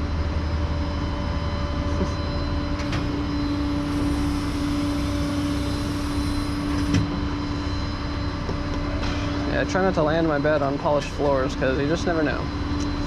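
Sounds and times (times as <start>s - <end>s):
truck engine running: 0.0s - 9.0s
hydraulic pump humming: 0.0s - 13.0s.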